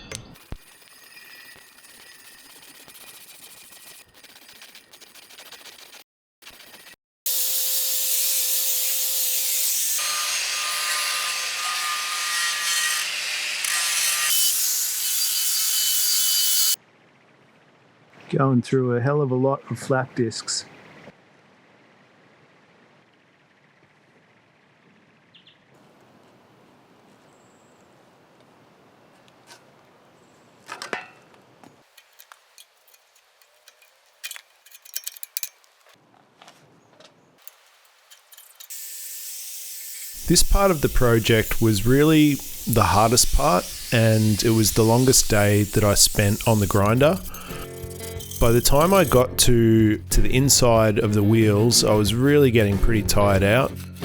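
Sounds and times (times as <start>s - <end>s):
angle grinder grinding metal: 0.3s - 4.9s, 6.5s - 16.8s, 37.4s - 54.0s.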